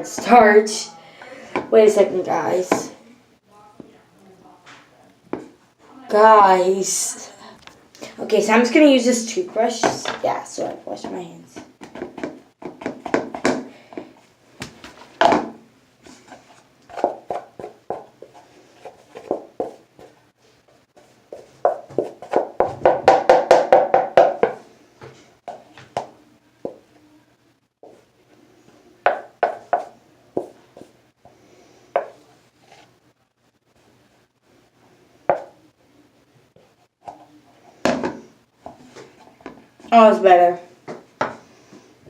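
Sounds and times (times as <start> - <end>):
toothbrush tapping and scraping slime: 16.3 - 20.1.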